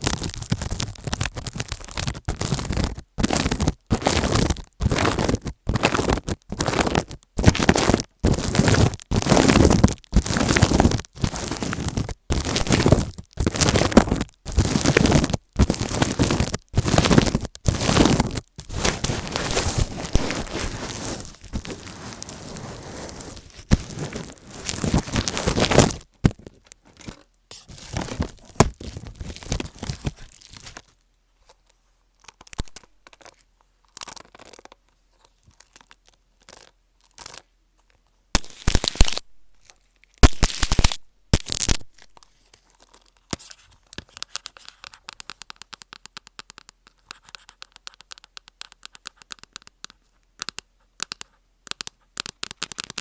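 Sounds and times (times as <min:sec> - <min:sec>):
close rustling and scraping: 0:00.0 - 0:31.8.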